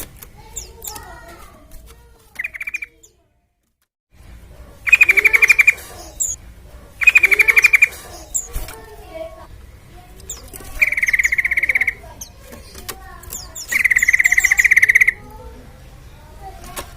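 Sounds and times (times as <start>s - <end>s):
soft bird chirps: 0.4s - 1.2s, 2.3s - 3.2s, 4.8s - 6.4s, 7.0s - 15.3s
bird rattling trills: 2.4s - 3.0s, 4.8s - 9.3s, 10.1s - 15.2s.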